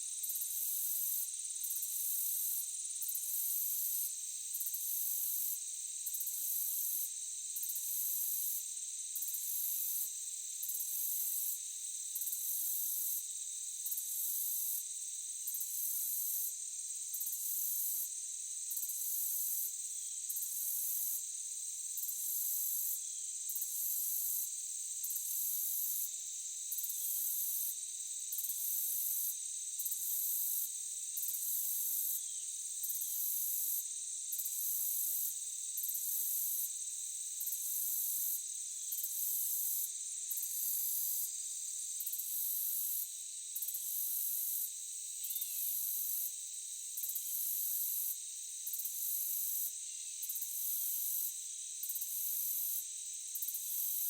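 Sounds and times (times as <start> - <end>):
insects trilling: 15.4 - 54.0.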